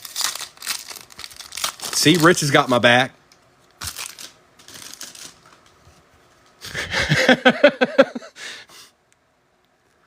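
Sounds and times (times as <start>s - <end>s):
man laughing breathily: 6.6s - 8.9s
man exhaling: 8.4s - 8.9s.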